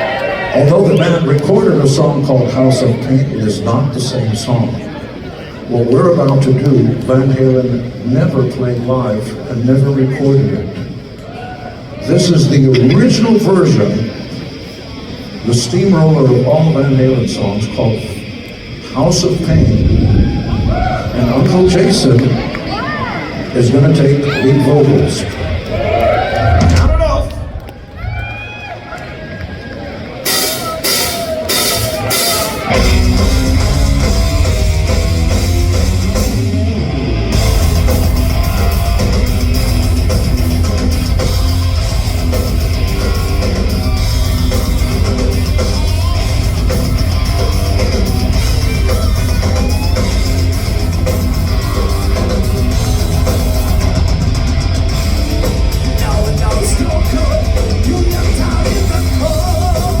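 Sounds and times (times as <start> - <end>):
heavy rock band playing: 30.2 - 60.0.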